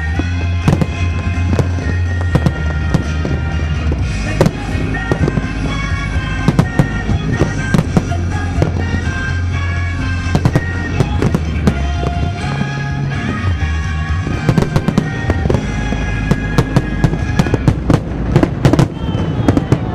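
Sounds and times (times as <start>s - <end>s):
fireworks bursting and crackling: 0.0s - 19.9s
music: 0.0s - 19.9s.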